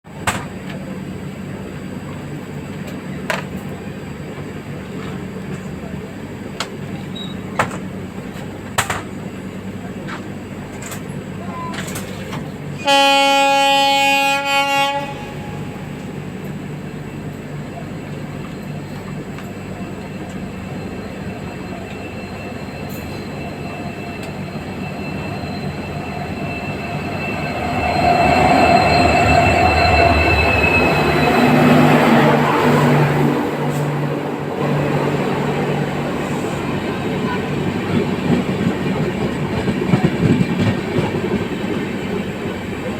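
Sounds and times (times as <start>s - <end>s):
train approaching rumble: 0.1s - 42.9s
locomotive horn blast: 12.8s - 16.2s
steady high tones: 16.2s - 38.7s.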